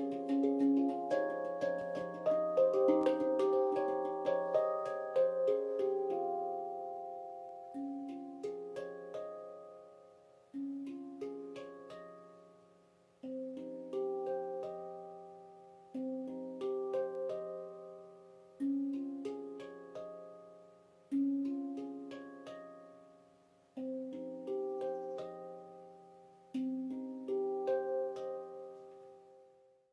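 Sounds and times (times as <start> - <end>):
handpan notes ringing: 0.0 - 29.7.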